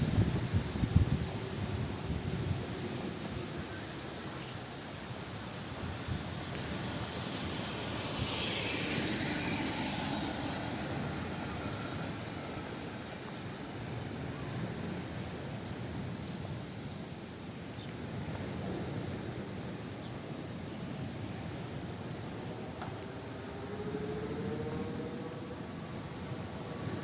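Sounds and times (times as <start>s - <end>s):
outdoor ambient noise: 0.0s - 27.0s.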